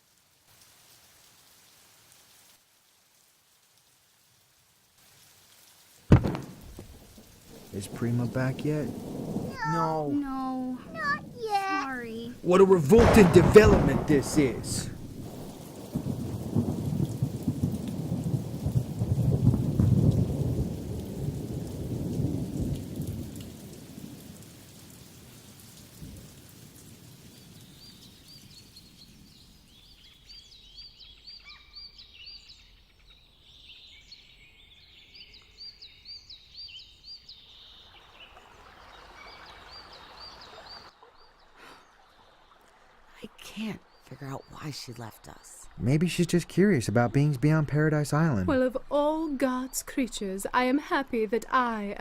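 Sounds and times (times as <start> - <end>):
rain: 0.0 - 52.0
low roll of thunder: 6.1 - 10.2, 12.3 - 25.3, 25.9 - 29.3.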